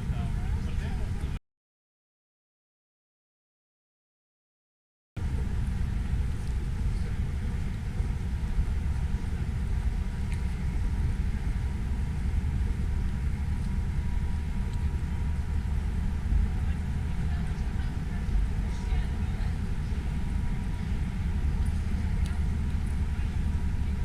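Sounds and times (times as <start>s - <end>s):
road traffic: 0.0s - 1.4s, 5.2s - 24.0s
wind buffeting microphone: 5.2s - 24.0s.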